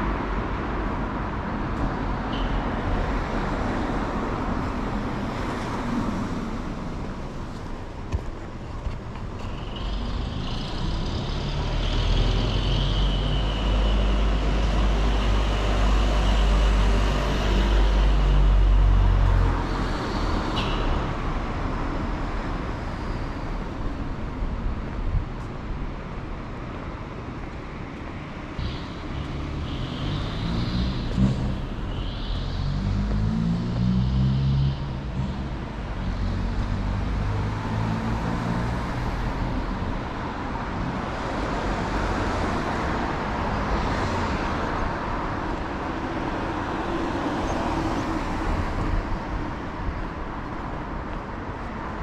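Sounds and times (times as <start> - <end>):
street traffic passing: 0.0 - 52.0
vehicle engine: 28.6 - 52.0.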